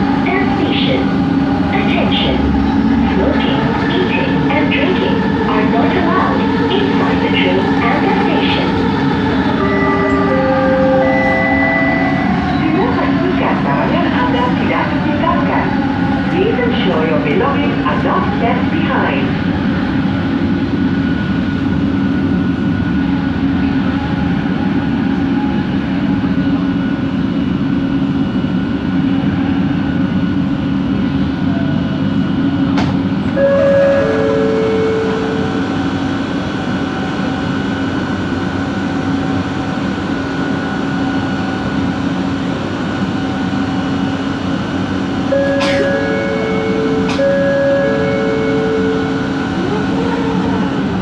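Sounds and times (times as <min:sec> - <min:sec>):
train carriage rumbling: 0:00.0 - 0:51.0
two-note chime: 0:45.4 - 0:49.2.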